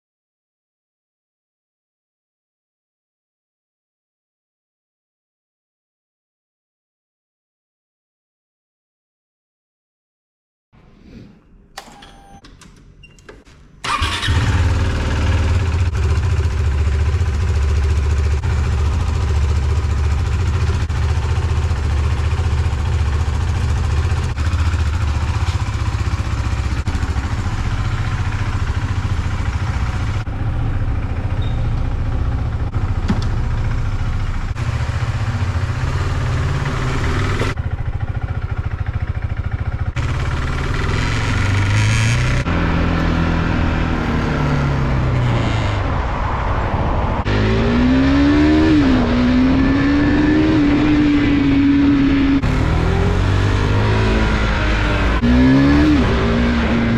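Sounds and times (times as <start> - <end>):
motorcycle engine starting and idling: 11.8 - 45.8, 49.7 - 56.9.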